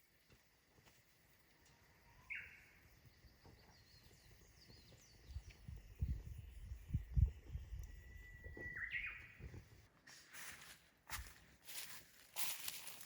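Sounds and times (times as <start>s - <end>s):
faint high bird chirps: 1.4s - 9.7s.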